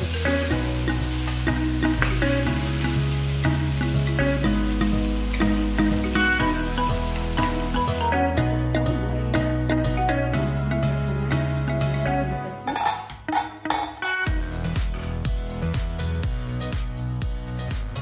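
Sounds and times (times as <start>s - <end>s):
chicken sizzling in a pan: 0.0s - 8.1s
soft background music: 0.0s - 18.0s.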